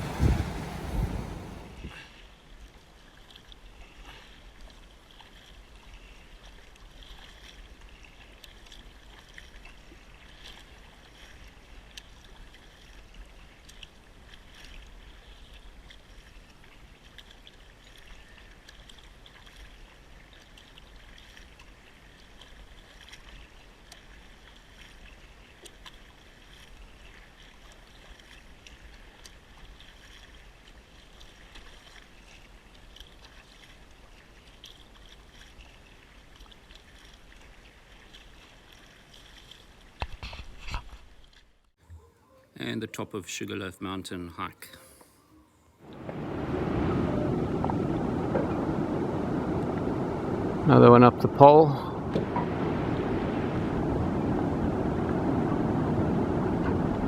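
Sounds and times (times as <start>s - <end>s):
low rumble: 0.0s - 1.9s, 45.8s - 51.3s
water lapping and trickling: 0.0s - 57.0s.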